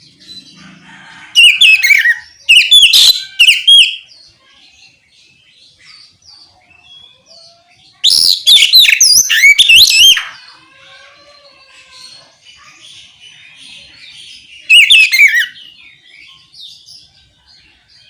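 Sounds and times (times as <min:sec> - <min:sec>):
magpie-robin singing whistled phrases: 0:01.4 - 0:04.1, 0:08.0 - 0:10.4, 0:14.6 - 0:15.6.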